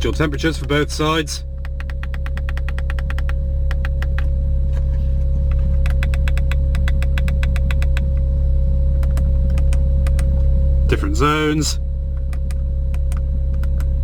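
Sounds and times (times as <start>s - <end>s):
car engine idling: 0.0s - 14.0s
climate control clicks: 1.6s - 4.3s, 5.5s - 8.3s, 9.0s - 10.5s, 12.2s - 13.9s.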